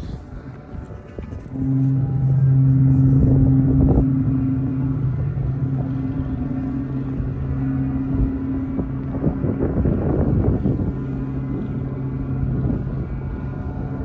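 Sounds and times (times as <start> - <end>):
kite flutes droning: 0.0 - 14.0
wind buffeting microphone: 0.0 - 14.0.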